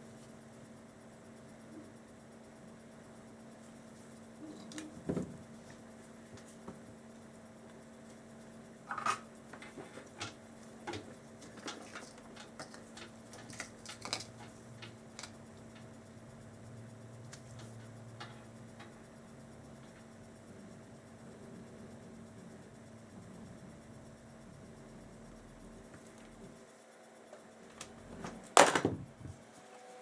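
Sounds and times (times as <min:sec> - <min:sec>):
faint steady hum: 0:00.0 - 0:30.0
hand tools clicking and scratching: 0:09.6 - 0:15.9.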